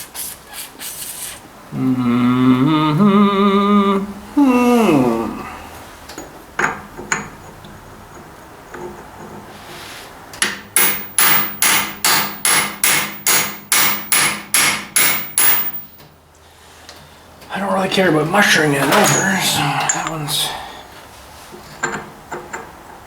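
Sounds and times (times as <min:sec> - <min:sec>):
hammer striking metal fastener: 0:10.4 - 0:15.9.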